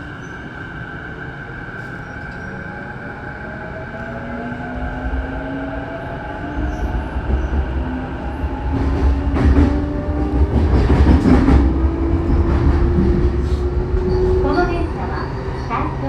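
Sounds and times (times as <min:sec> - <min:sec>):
wheel and track rumble: 0:06.6 - 0:16.0.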